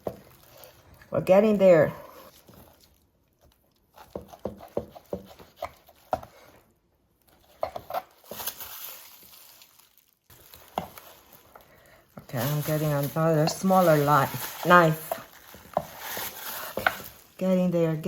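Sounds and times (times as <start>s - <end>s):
knife scraping rasp: 12.6s - 17.2s.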